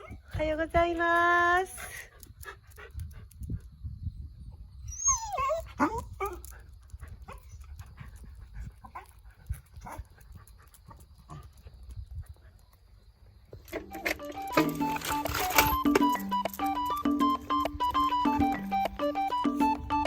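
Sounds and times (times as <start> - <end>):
dog whining: 4.8 - 6.5.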